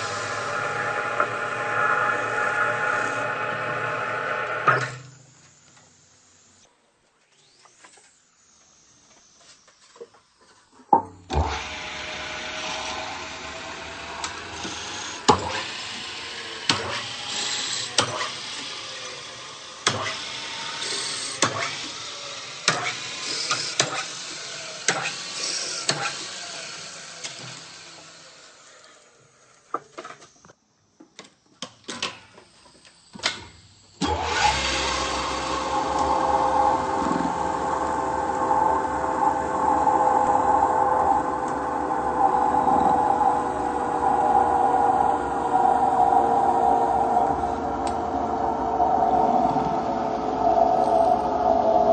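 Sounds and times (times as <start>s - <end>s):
metal lathe running: 0.0s - 4.7s, 11.4s - 28.5s, 34.0s - 49.1s.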